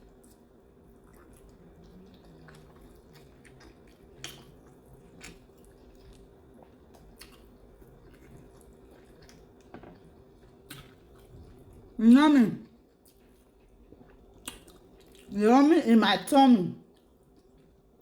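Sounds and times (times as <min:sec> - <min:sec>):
person chewing food: 0:00.0 - 0:12.0, 0:12.7 - 0:15.3, 0:16.9 - 0:18.0
faint steady hum: 0:00.0 - 0:18.0
wet mouth clicks and smacks: 0:14.4 - 0:15.2.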